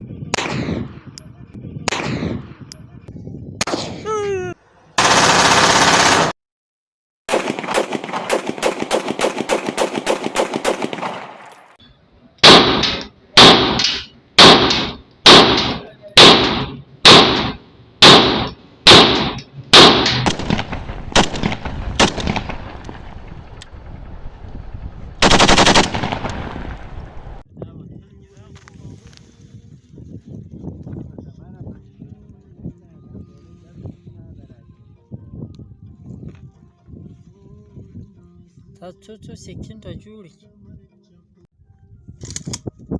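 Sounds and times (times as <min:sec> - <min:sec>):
pistol shots: 0:00.4 - 0:01.1, 0:01.9 - 0:02.6, 0:07.3 - 0:11.5, 0:12.4 - 0:22.8, 0:25.2 - 0:26.6.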